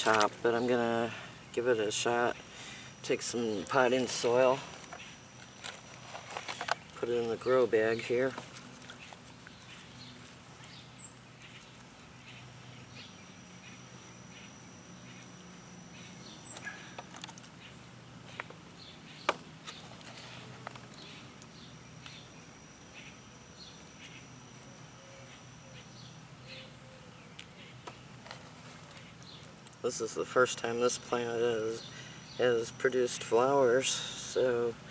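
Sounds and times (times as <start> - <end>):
soil rustling and scraping: 0.0 - 2.3, 3.1 - 10.7, 19.6 - 21.2, 28.2 - 31.9.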